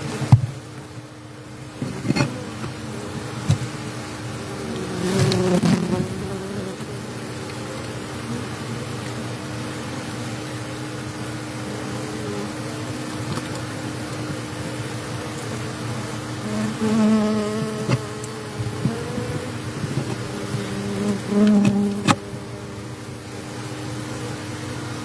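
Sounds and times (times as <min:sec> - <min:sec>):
bees buzzing: 0:01.1 - 0:09.0, 0:11.5 - 0:25.0
bee flying past: 0:01.8 - 0:07.9, 0:14.6 - 0:23.7.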